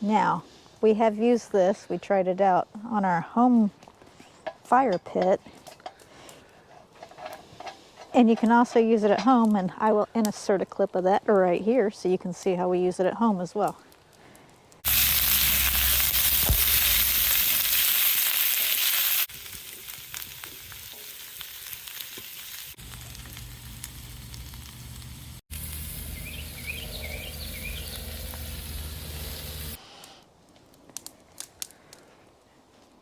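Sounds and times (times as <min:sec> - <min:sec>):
food sizzling on a griddle: 0:14.8 - 0:29.8.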